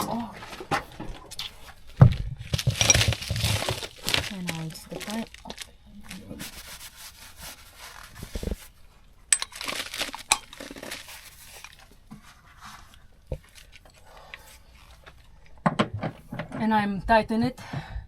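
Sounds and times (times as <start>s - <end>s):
hands and tools scraping: 2.5s - 16.6s.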